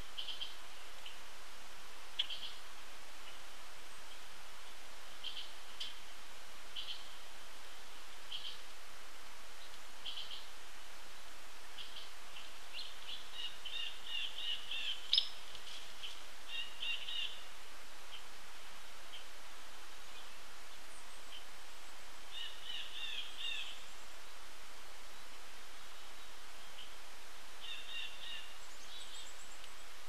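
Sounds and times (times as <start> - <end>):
outdoor hiss: 0.0 - 30.0
birds chirping: 11.8 - 17.5.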